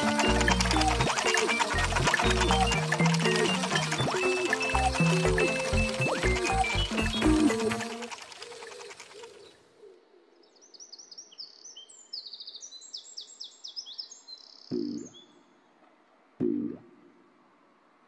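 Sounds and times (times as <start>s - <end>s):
music: 0.0s - 8.1s
high bird chirps and twitters: 0.0s - 9.6s.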